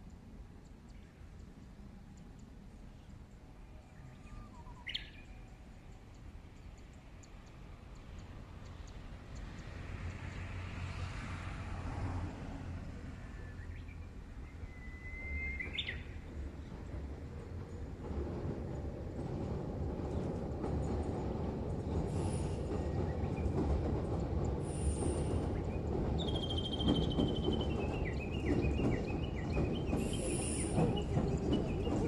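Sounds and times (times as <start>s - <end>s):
train rumble: 0.0s - 32.0s
bird singing whistled song: 3.8s - 5.6s, 13.4s - 16.2s, 25.6s - 32.0s.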